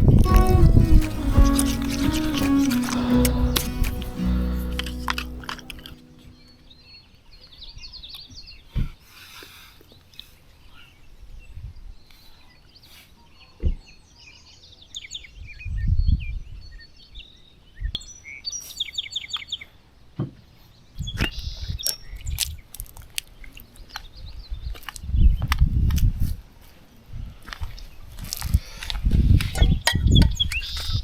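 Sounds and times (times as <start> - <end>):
birds chirping: 0.0 - 6.7.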